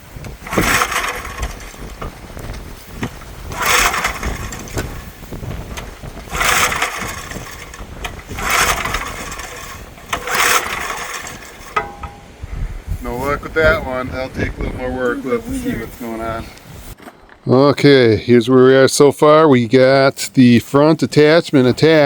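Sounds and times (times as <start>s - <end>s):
small engine cranking: 0.0s - 12.4s.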